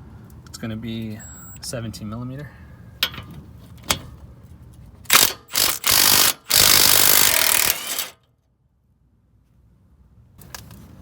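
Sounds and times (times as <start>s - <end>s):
impact wrench bursts: 5.1s - 8.2s.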